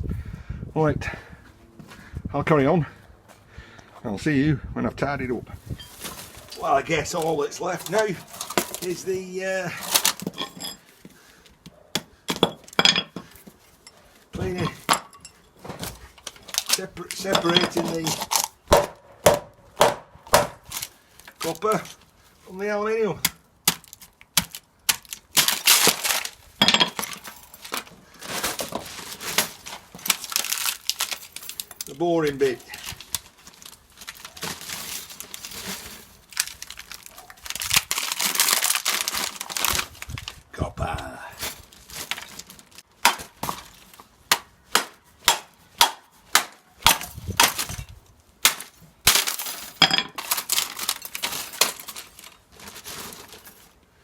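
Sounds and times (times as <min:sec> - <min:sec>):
loose wire clattering and rustling: 0:05.6 - 0:11.6, 0:12.3 - 0:18.7, 0:20.6 - 0:22.3, 0:23.8 - 0:40.5, 0:41.4 - 0:44.2, 0:46.6 - 0:53.9
scrap wire metallic clinks: 0:09.8 - 0:10.9, 0:12.4 - 0:15.6.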